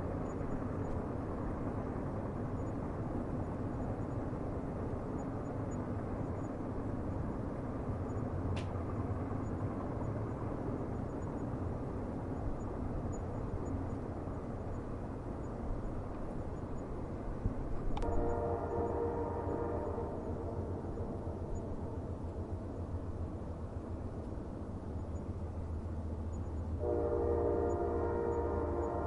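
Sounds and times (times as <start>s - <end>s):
train rumbling on rails: 0.0s - 29.0s
train horn chord: 18.0s - 21.5s, 26.8s - 29.0s.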